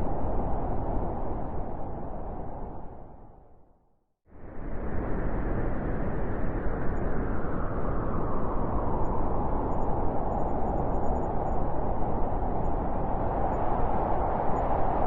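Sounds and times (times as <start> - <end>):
wind blowing: 4.6 - 15.0.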